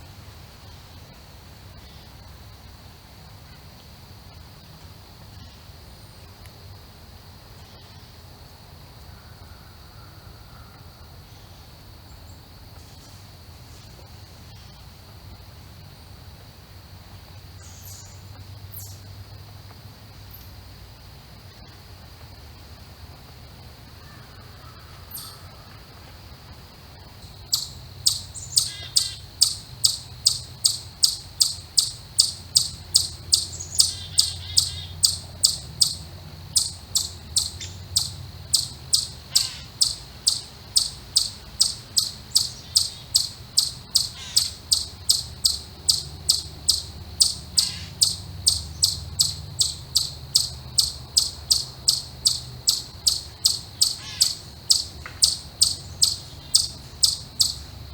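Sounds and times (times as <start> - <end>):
faint chirps: 27.0 - 57.8
small animal chip call: 27.5 - 57.6.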